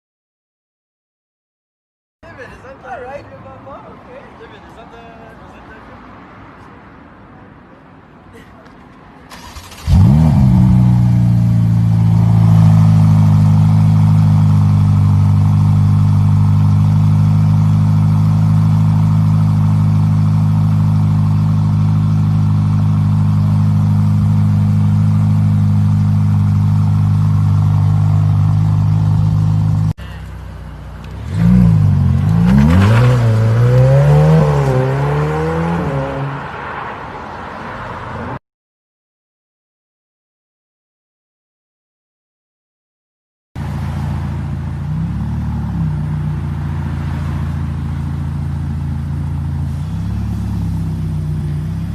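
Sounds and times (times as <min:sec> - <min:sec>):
car engine idling and revving: 0:09.3 - 0:38.4, 0:43.6 - 0:51.9.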